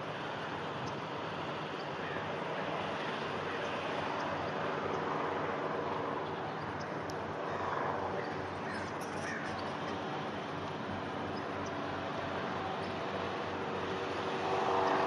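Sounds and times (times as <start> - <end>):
low engine drone: 0.0 - 15.0
crows cawing: 2.0 - 2.3, 8.2 - 9.6.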